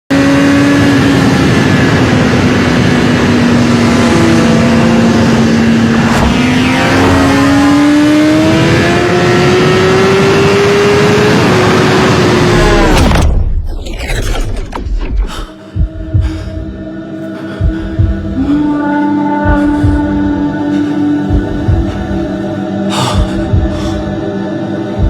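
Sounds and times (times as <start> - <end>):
motorcycle engine running: 0.1 - 12.9, 17.4 - 24.1
vehicle passing: 3.6 - 9.8.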